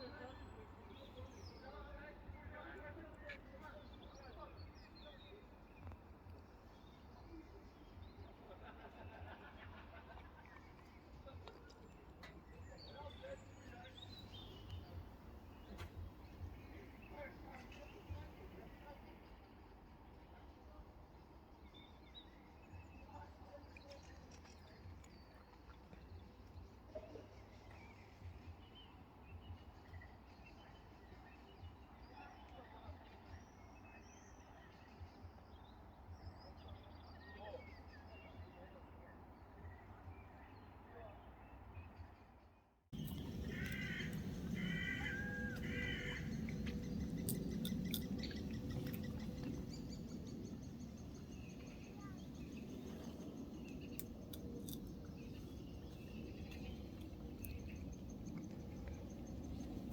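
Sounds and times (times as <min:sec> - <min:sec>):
small birds chirping: 0:10.6 - 0:19.1, 0:43.0 - 0:59.9
low rumble: 0:43.0 - 0:59.9.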